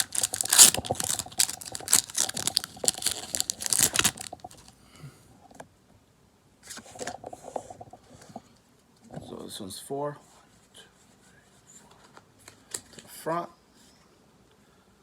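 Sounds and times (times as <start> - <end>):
cards being handled: 0.0 - 4.7
foil wrapper tearing and crinkling: 0.0 - 4.7.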